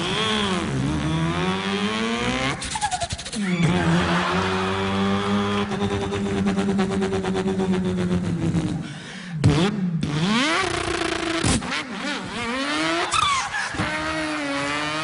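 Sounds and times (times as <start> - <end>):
man imitating car engine: 0.0 - 11.5.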